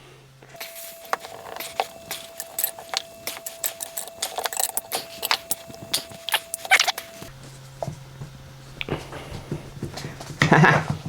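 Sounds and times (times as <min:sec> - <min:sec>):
metal parts clinking and rattling: 0:00.6 - 0:07.3.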